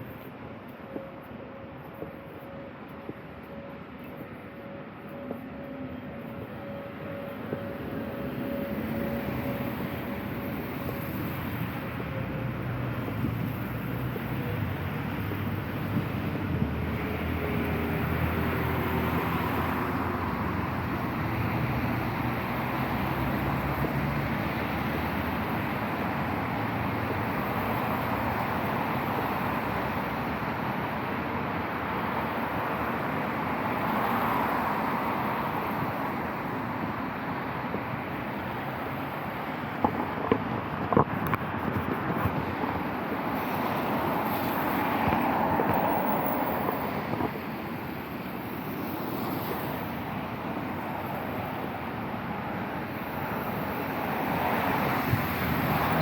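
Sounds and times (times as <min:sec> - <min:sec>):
tyres hissing on wet street: 0:07.9 - 0:56.0.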